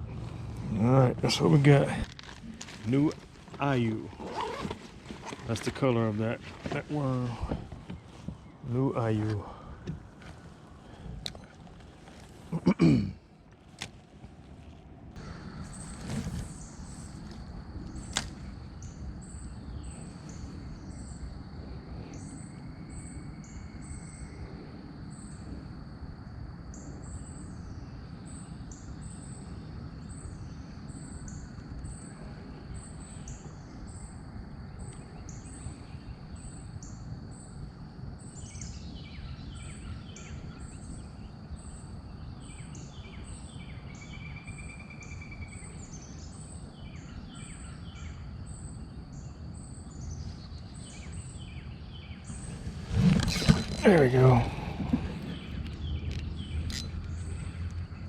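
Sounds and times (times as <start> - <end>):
songbirds singing: 0.0 - 13.6, 15.1 - 25.8, 26.4 - 58.0
low background rumble: 0.0 - 25.0.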